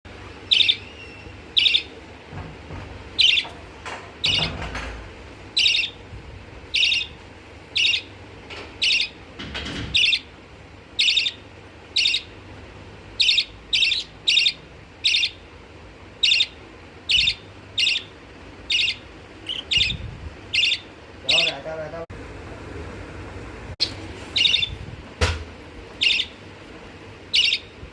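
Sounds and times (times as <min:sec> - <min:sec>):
budgerigar chirping: 0:00.5 - 0:01.9, 0:03.2 - 0:03.5, 0:05.6 - 0:06.0, 0:06.7 - 0:08.1, 0:08.8 - 0:09.2, 0:10.0 - 0:10.3, 0:11.0 - 0:12.3, 0:13.2 - 0:15.4, 0:16.2 - 0:18.1, 0:18.7 - 0:21.6, 0:23.8 - 0:24.8, 0:26.0 - 0:26.4, 0:27.3 - 0:27.8.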